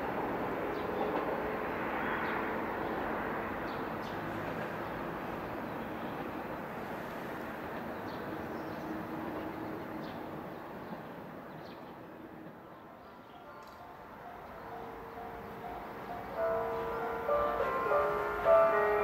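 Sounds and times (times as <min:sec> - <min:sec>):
electric train running: 0:14.8 - 0:19.0.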